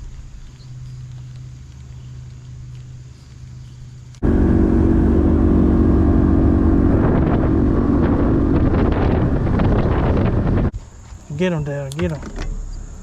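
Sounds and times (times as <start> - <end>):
boat motor running: 4.2 - 10.7
wind on microphone: 4.2 - 10.8.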